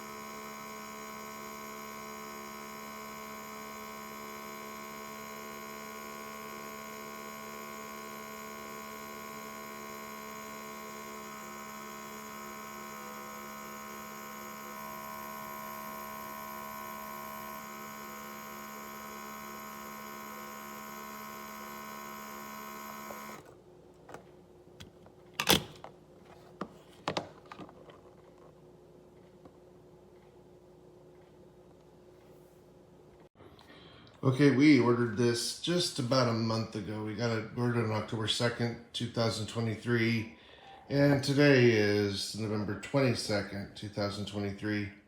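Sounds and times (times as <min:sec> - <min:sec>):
steady electric hum: 0:00.0 - 0:26.3.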